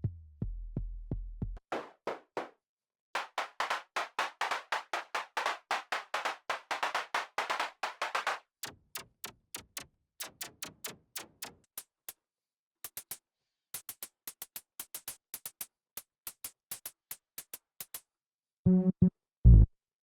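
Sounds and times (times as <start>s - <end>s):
synthesizer plucks: 18.7s - 19.7s.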